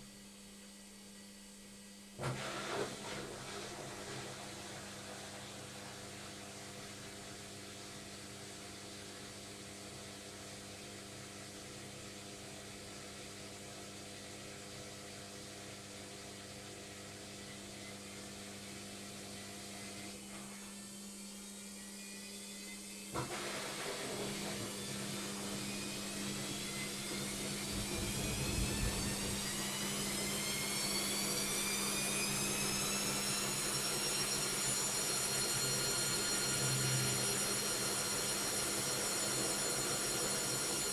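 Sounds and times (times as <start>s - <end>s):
washing machine running: 2.2s - 40.9s.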